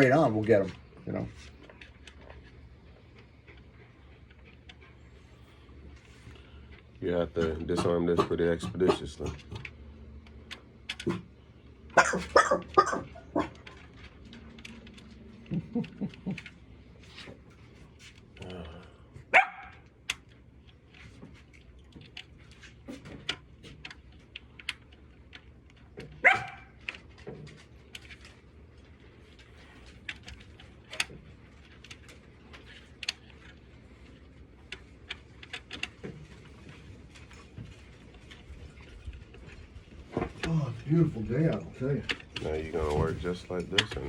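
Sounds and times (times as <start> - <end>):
faint clicks and taps: 0.0 - 44.0
dog barking: 12.0 - 13.6, 19.3 - 19.8, 26.2 - 26.7.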